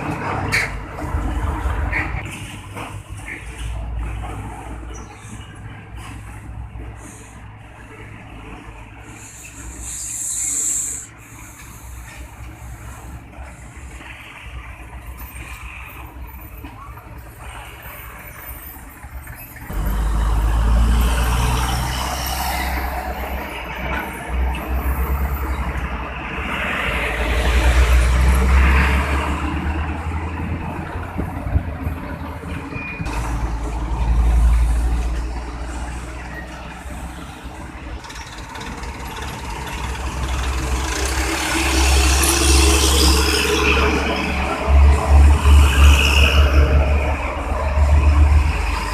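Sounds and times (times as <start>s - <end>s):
truck engines rumbling: 0.0s - 48.9s
air brakes hissing: 9.0s - 14.3s.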